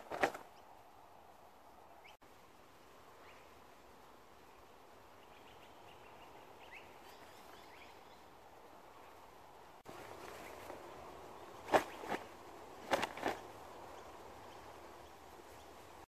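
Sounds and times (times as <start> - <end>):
faint outdoor ambience: 0.0 - 16.0
faint bird chirps: 4.4 - 9.2.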